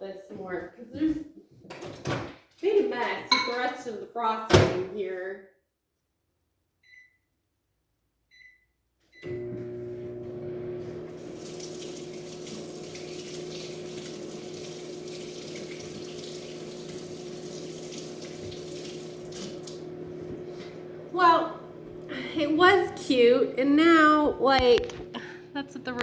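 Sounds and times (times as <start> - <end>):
microwave humming and whirring: 9.2 - 26.0.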